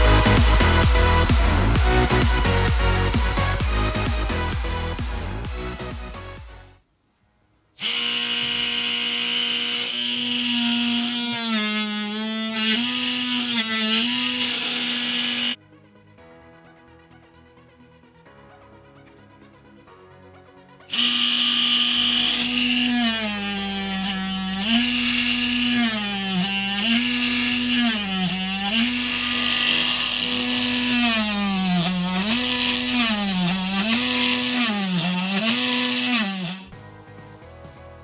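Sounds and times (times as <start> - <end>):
drill press motor whining: 7.8 - 15.6, 20.9 - 36.7.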